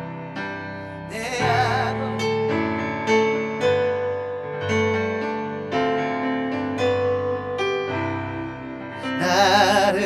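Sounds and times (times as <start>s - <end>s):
keyboard playing slow chords: 0.0s - 10.0s
person singing: 0.9s - 2.9s, 9.0s - 10.0s.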